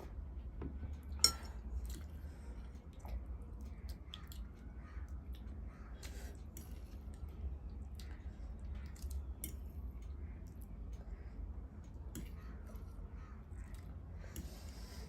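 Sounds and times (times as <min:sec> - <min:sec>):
person chewing food: 0:00.9 - 0:15.0.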